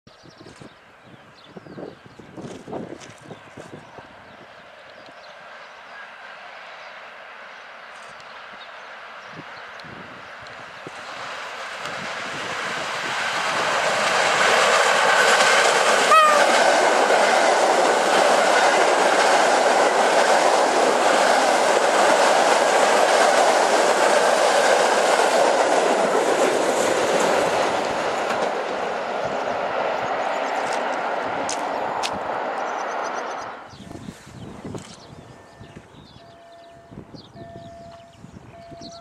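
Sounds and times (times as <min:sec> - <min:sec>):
train wheel and rail rush: 0:00.3 - 0:39.0
brief high tone: 0:16.1 - 0:16.6.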